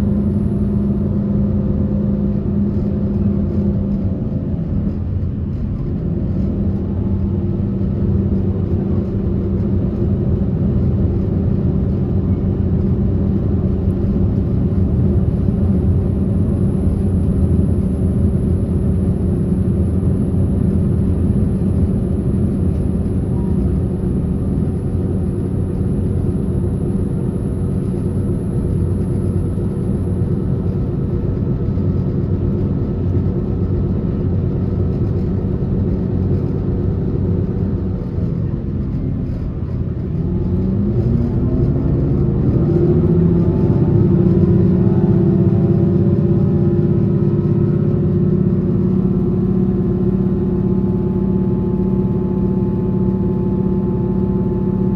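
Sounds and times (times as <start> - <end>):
train wheels rumbling on rails: 20.6 - 54.8.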